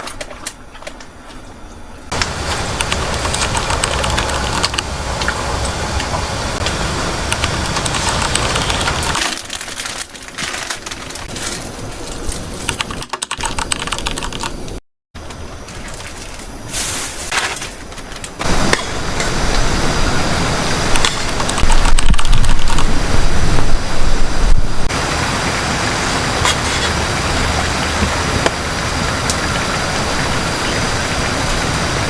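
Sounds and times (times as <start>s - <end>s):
heavy rain rushing: 2.1s - 9.2s, 18.4s - 32.0s
dense irregular clicking: 2.1s - 14.8s.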